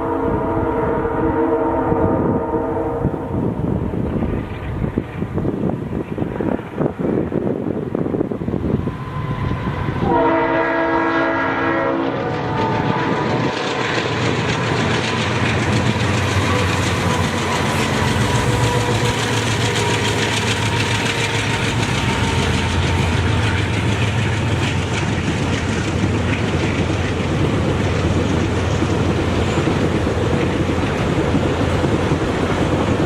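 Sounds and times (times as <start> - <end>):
train rumbling on track: 0.0 - 33.0
wheel-on-rail clatter: 13.3 - 32.7.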